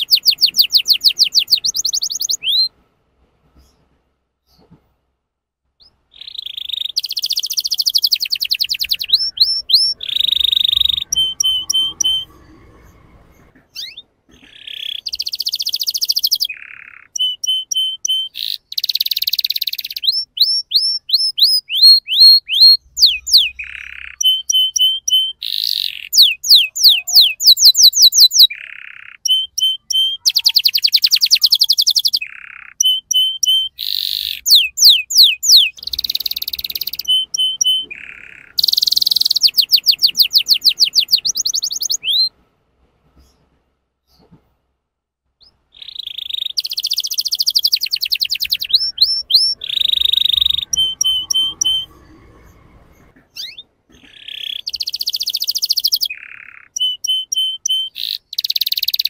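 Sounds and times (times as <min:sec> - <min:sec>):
canary singing: 0:00.0 - 0:02.7, 0:05.8 - 0:42.3, 0:45.4 - 0:59.0.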